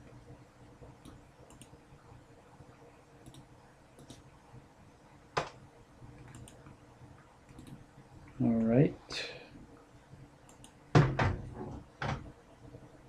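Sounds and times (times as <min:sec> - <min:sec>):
faint light clicks: 0:06.2 - 0:06.8.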